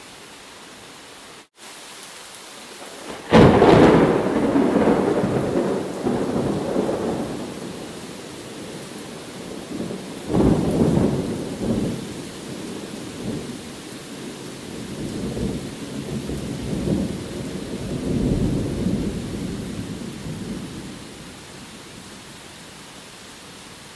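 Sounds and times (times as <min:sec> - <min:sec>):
steady rain: 0:00.0 - 0:23.9
rolling thunder: 0:03.0 - 0:13.6, 0:14.7 - 0:21.4.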